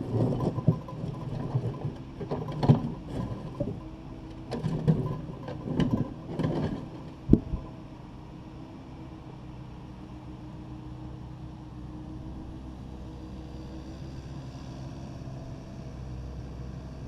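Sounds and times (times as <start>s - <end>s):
bucket clanking and scraping rubble: 0.0s - 7.7s
excavator diesel engine running: 0.0s - 10.4s.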